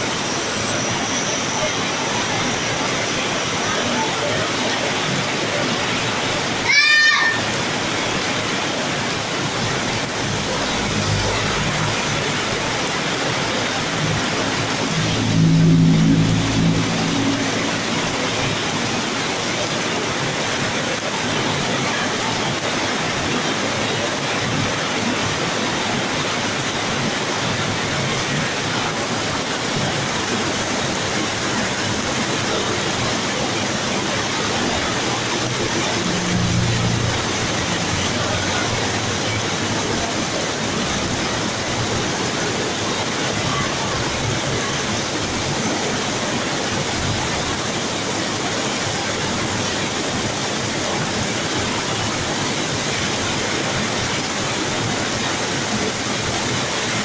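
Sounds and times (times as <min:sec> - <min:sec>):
heavy rain pouring: 0:00.0 - 0:57.0
low rumble: 0:13.8 - 0:19.0.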